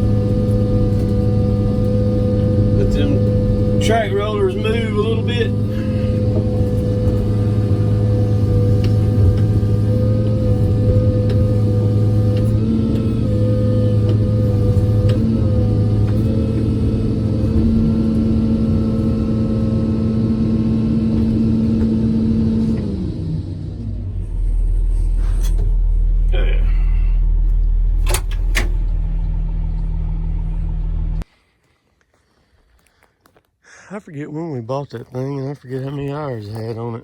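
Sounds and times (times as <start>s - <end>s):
excavator diesel engine working: 0.0s - 31.3s
low steady hum: 0.0s - 31.3s.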